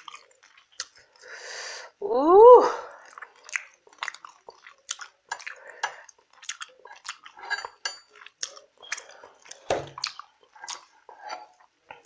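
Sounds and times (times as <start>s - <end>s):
cutlery clinking on a dish: 7.4s - 8.2s.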